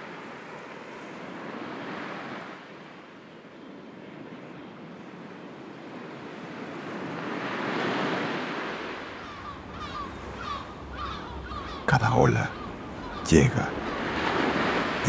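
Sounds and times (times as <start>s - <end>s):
sea waves washing ashore: 0.0s - 15.0s
bird calling: 9.1s - 15.0s.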